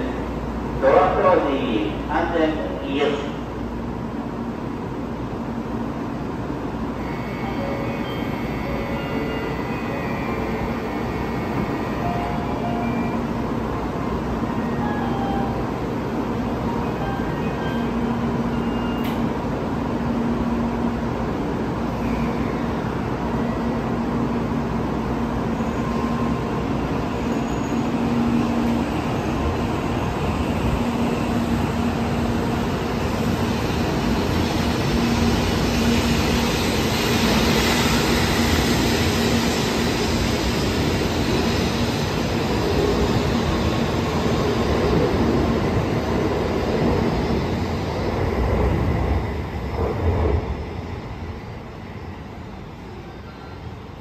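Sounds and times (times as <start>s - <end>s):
train running noise: 0.0s - 54.0s.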